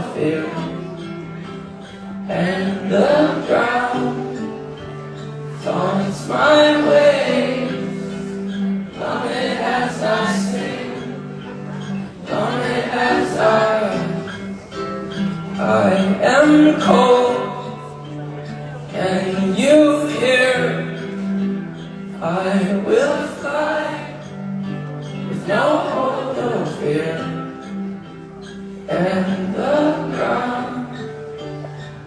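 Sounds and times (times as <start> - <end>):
group singing: 0.0 - 14.8, 22.2 - 24.4, 25.1 - 32.0.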